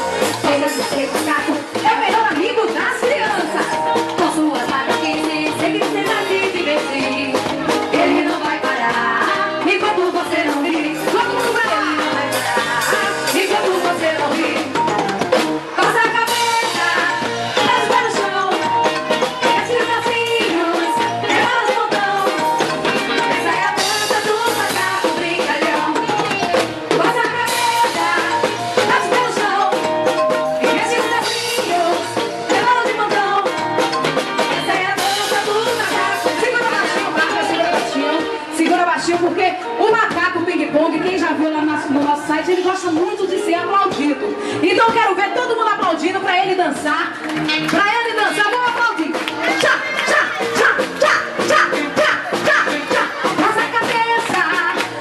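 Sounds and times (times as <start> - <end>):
drum kit: 0.0 - 55.0
upbeat band music: 0.0 - 55.0
person singing: 49.4 - 55.0.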